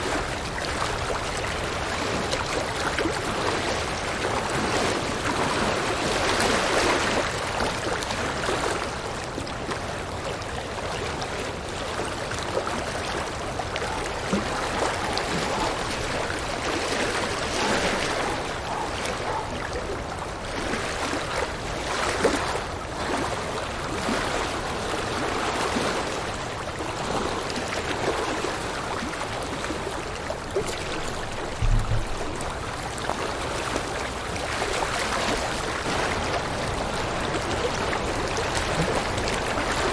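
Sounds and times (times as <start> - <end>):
stream running over rocks: 0.0 - 39.9
low thump: 31.6 - 32.6.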